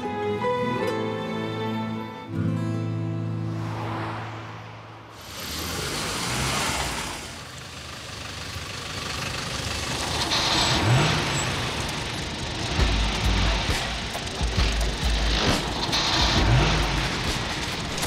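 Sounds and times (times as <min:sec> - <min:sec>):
road noise: 0:00.0 - 0:18.0
car engine running: 0:05.1 - 0:18.0.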